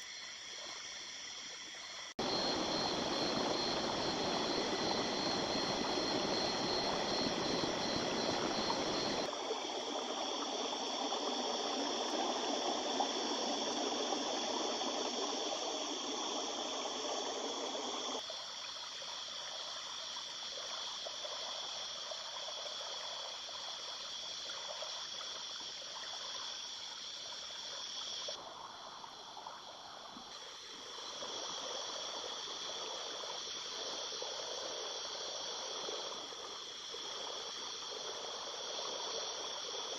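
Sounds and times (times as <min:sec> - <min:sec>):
river trickling over stones: 0:02.2 - 0:14.4.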